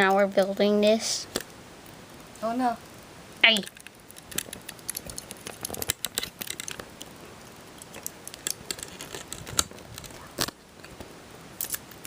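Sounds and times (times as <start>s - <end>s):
plastic pieces clicking and rattling: 3.6s - 7.1s.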